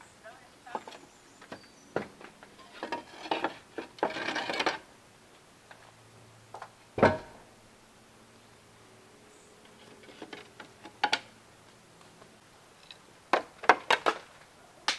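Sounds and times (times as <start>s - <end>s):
rough scrape: 2.6s - 4.9s
knocks: 7.0s - 7.4s
loud thud: 7.0s - 7.5s.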